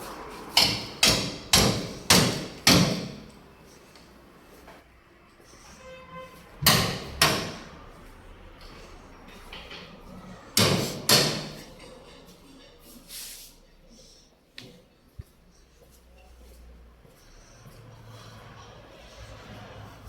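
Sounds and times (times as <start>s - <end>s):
heavy knocks on metal: 0.6s - 3.3s, 6.6s - 7.7s, 10.6s - 11.6s.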